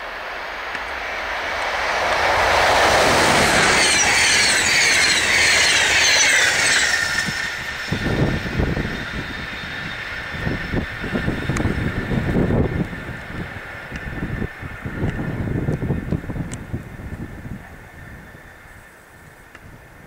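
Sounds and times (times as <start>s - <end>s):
passing train wheel and rail noise: 0.0s - 20.0s
wind buffeting microphone: 0.6s - 20.0s
high tones sliding downward: 0.9s - 11.7s.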